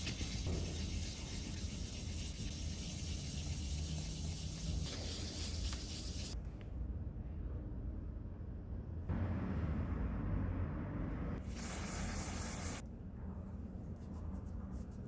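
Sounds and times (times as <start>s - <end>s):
aerosol spray can hissing: 0.0s - 6.4s, 11.4s - 12.8s.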